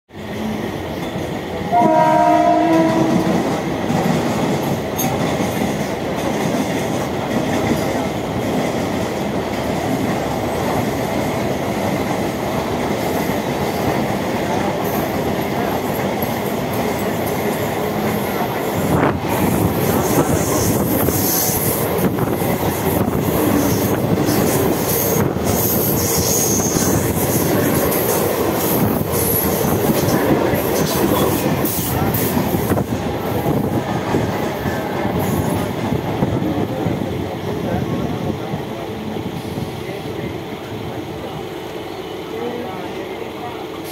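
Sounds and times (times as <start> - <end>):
train horn: 1.7 - 3.5
high wheel squeal: 25.8 - 27.1.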